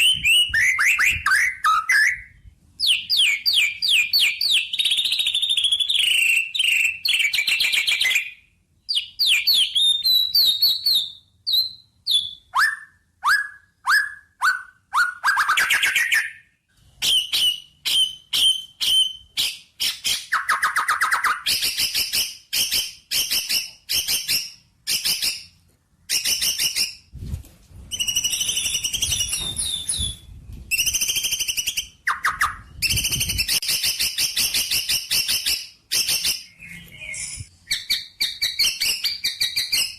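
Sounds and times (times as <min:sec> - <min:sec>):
songbird singing: 0:36.0 - 0:39.8.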